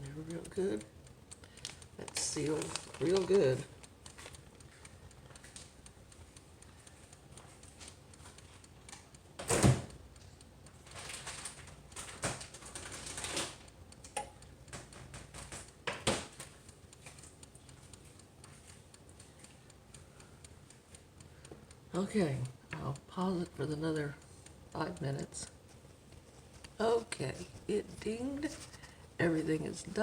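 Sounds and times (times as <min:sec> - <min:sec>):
knocks of kitchen parts: 0:09.4 - 0:09.9, 0:15.9 - 0:16.4.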